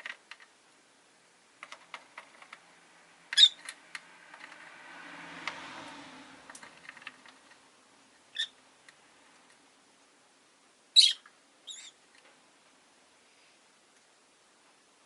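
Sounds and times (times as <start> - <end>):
faint street noise: 0.5 - 15.0
lovebirds chirping: 3.3 - 3.7, 8.3 - 8.6, 10.9 - 12.0.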